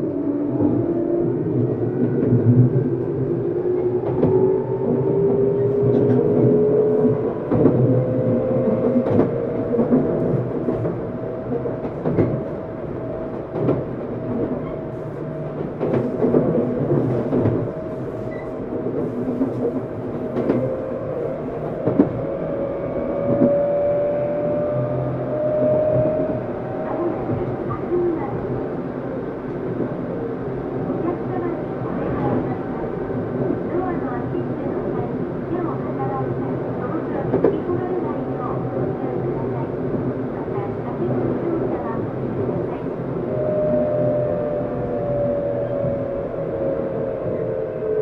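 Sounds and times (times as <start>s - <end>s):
rail joint clacks: 3.7s - 22.4s.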